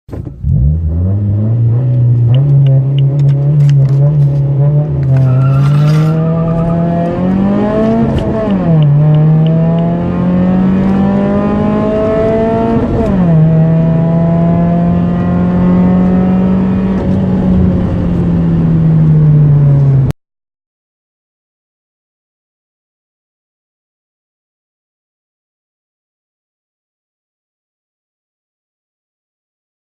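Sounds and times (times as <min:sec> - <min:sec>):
car engine accelerating through gears: 0:00.1 - 0:20.1.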